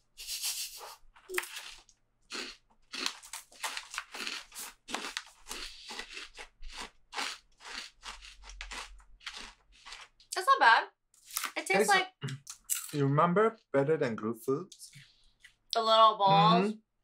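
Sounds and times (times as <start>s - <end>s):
crunchy cereal being chewed: 1.2s - 10.4s.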